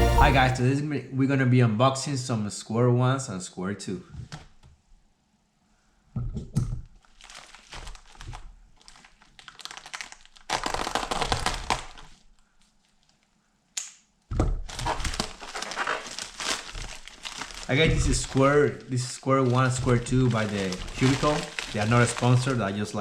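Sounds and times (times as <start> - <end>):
packaging rustling and crinkling: 6.9 - 13.4, 14.6 - 23.0
knocks and thunks: 14.3 - 14.7.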